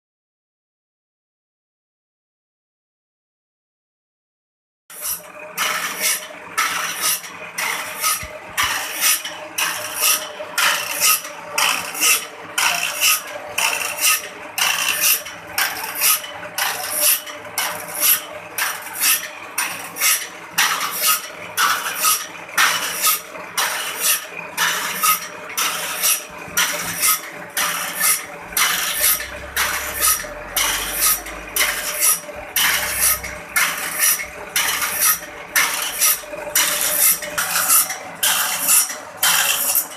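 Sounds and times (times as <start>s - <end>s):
file rasping on saw blade: 4.9s - 39.9s
machine hum: 24.3s - 38.2s.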